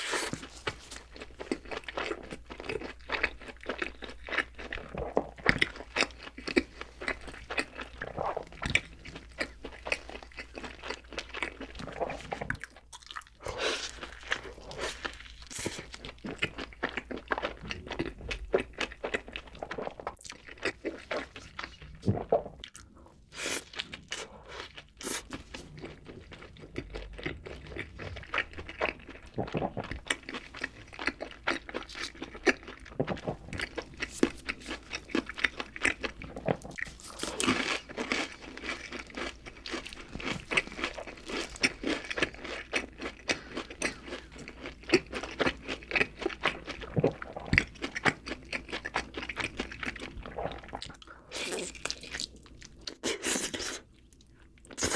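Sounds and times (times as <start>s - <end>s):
crunchy food chewing: 0.0s - 54.9s.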